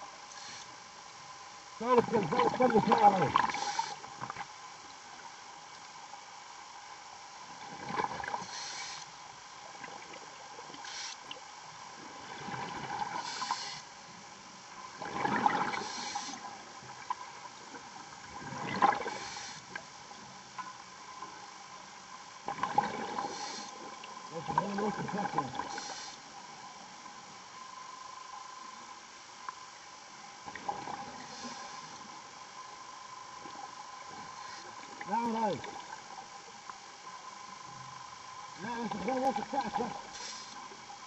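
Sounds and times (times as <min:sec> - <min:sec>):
faint steady hum: 0:00.0 - 0:41.0
diver breathing through regulator: 0:03.5 - 0:04.0, 0:08.4 - 0:09.1, 0:13.1 - 0:13.9, 0:15.7 - 0:16.4, 0:23.2 - 0:23.8, 0:25.7 - 0:26.2, 0:31.2 - 0:32.0.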